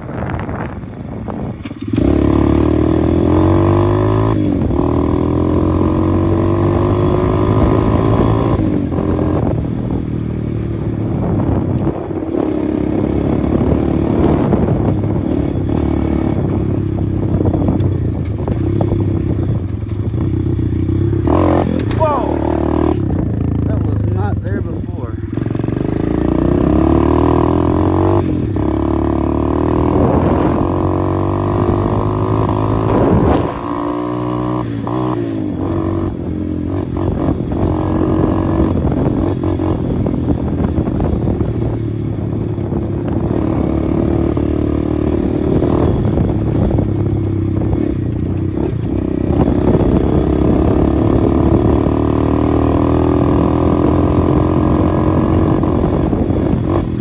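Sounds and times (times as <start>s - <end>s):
motorbike engine revving: 0.0s - 57.0s.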